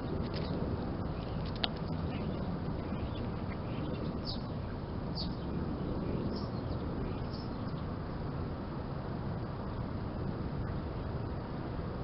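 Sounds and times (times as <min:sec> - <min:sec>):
small birds chirping: 0:00.0 - 0:08.3
low background rumble: 0:00.0 - 0:12.0.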